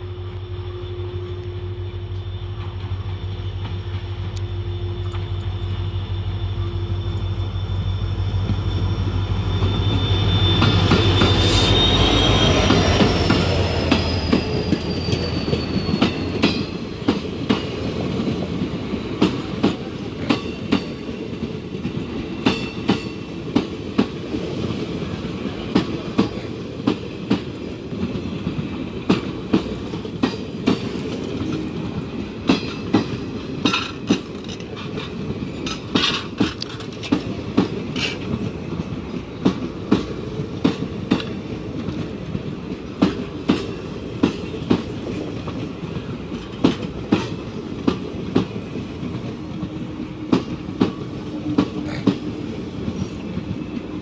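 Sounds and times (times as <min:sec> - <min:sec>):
train rumble: 0:00.0 - 0:54.0
train wheels clattering over rail joints: 0:25.2 - 0:54.0.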